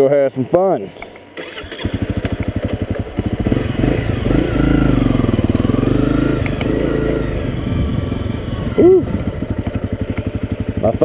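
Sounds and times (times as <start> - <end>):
dirt bike engine revving: 1.4 - 11.0.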